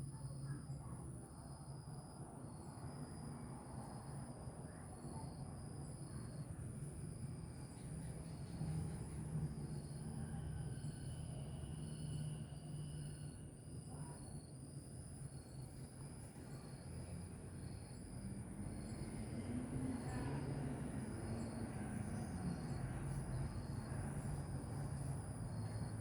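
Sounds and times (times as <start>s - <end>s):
insect chorus: 0.0s - 26.0s
low outdoor rumble: 15.1s - 26.0s.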